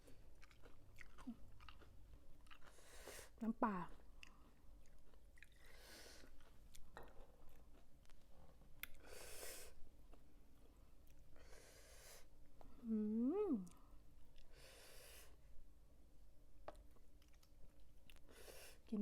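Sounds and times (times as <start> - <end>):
chewing crunchy food: 0.0 - 9.1, 16.7 - 18.4
soft breaths: 2.6 - 3.4, 5.5 - 7.5, 8.3 - 9.9, 10.6 - 12.9, 13.7 - 15.6, 18.1 - 19.0.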